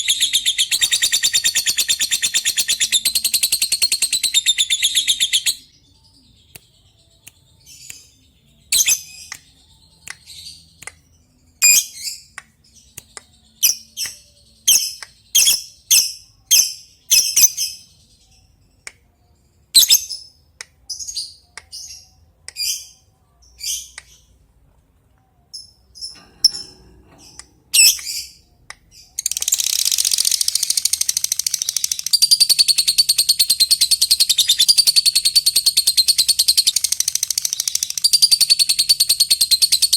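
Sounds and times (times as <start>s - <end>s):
lovebird chirps: 0.0s - 10.6s, 11.6s - 12.3s, 13.2s - 17.8s, 19.7s - 20.3s, 25.5s - 39.9s
lovebird chattering trill: 27.7s - 28.2s.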